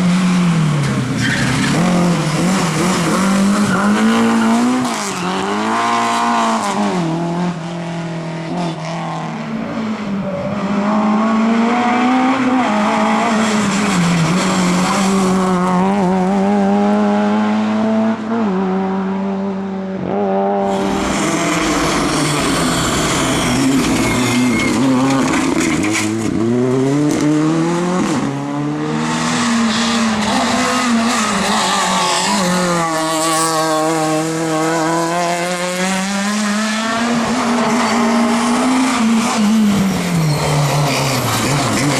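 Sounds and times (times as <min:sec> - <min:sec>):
tyre and road noise: 0:00.0 - 0:19.2, 0:19.9 - 0:41.9
rally car engine revving: 0:00.0 - 0:41.9
tyre squeal: 0:01.2 - 0:06.0, 0:20.7 - 0:26.2, 0:29.6 - 0:33.6, 0:37.6 - 0:41.9.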